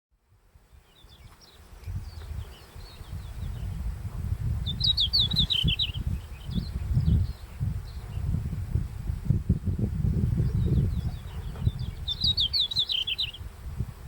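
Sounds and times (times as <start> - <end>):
bird singing: 0.7 - 3.8, 4.6 - 8.3, 10.4 - 13.5.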